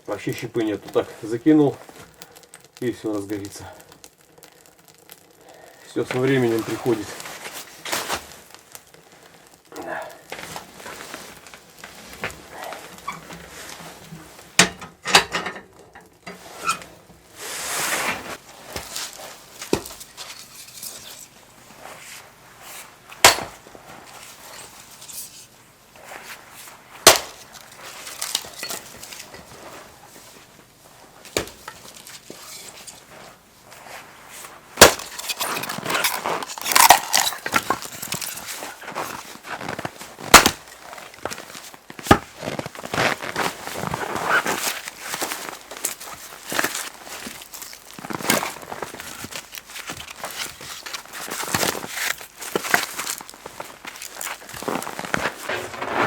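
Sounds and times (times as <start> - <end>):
firewood rustling: 0.0 - 56.0.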